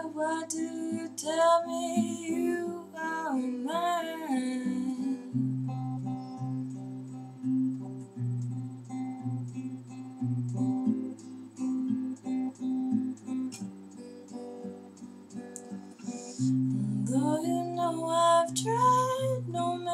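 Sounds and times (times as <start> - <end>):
person singing: 0.0 - 5.5, 16.1 - 19.9
acoustic guitar playing: 0.0 - 19.9.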